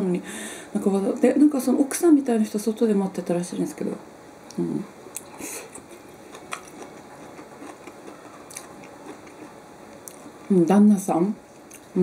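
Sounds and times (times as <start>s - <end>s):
person chewing food: 5.1s - 10.5s.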